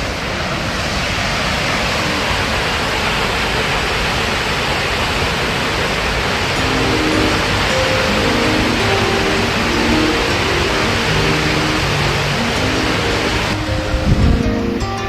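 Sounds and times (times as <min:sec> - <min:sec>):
waterfall rushing: 0:00.0 - 0:15.0
faint music notes: 0:06.5 - 0:15.0.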